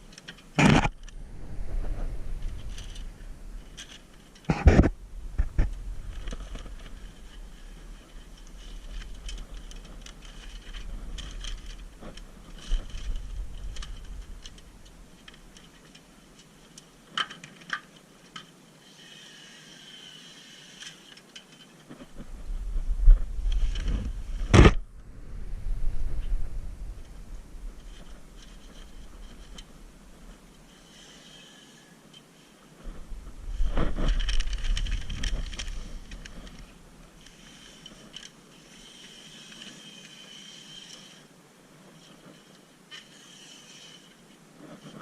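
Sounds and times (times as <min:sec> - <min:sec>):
low rumble: 0:01.0 - 0:04.2, 0:22.1 - 0:30.1
tools and parts rattling: 0:02.4 - 0:04.5, 0:05.5 - 0:14.6, 0:33.6 - 0:38.4.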